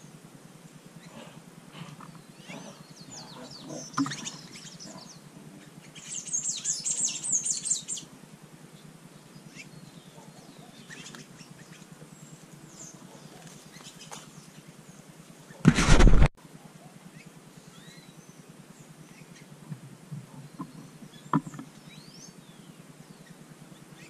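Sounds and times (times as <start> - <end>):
small birds chirping: 0.0 - 15.6, 16.6 - 24.0
brief rushing noise: 15.6 - 16.3.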